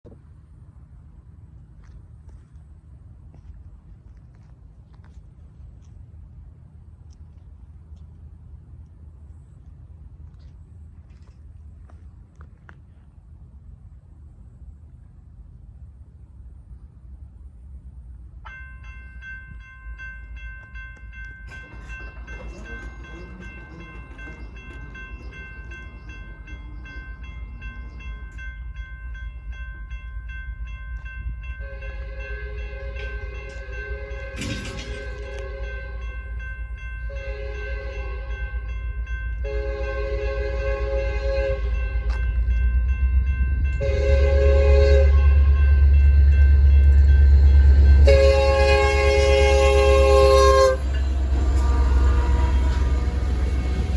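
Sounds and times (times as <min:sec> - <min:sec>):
train clattering rumble: 0:18.0 - 0:53.9
railroad crossing bell ringing: 0:18.4 - 0:53.9
locomotive air horn blasts: 0:31.6 - 0:36.2, 0:37.0 - 0:38.7, 0:39.4 - 0:42.1, 0:43.8 - 0:53.9.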